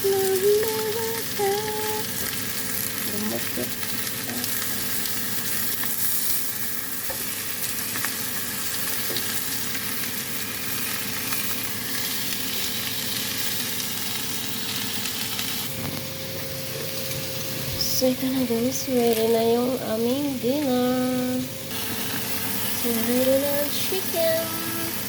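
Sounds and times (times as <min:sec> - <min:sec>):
faint steady hum: 0:00.0 - 0:03.6, 0:15.4 - 0:25.0
food sizzling in a pan: 0:00.0 - 0:25.0.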